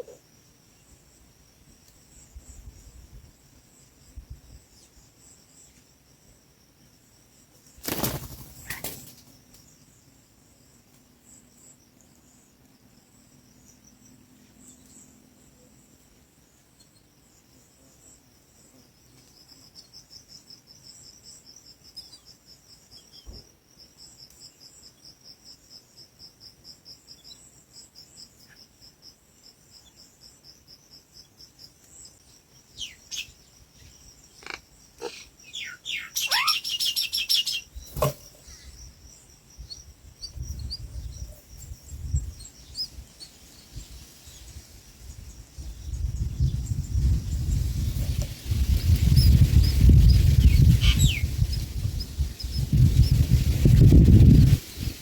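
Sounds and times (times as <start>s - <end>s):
high insect trill: 0.0s - 55.0s
bird wings flapping: 7.8s - 9.4s.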